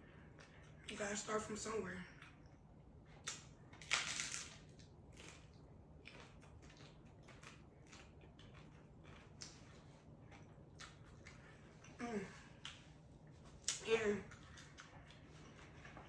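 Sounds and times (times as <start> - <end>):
wet chewing: 2.1 - 16.0
biting into a taco: 2.2 - 12.0
food crunching: 2.2 - 12.0, 12.6 - 16.0.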